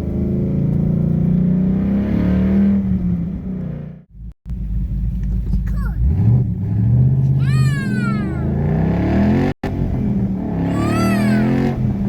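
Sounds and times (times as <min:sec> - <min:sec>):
car engine accelerating: 0:00.0 - 0:12.0
child squealing: 0:07.4 - 0:08.6, 0:10.6 - 0:11.7.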